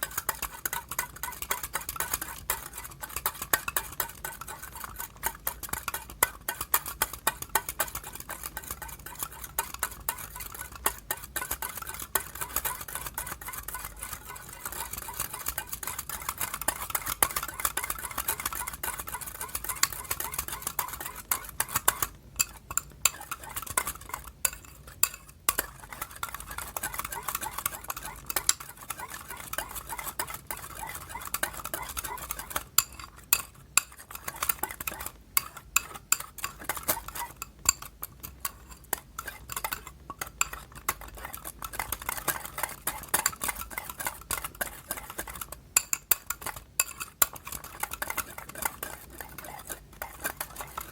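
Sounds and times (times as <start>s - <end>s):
slime being stirred in a bowl: 0.0s - 50.9s.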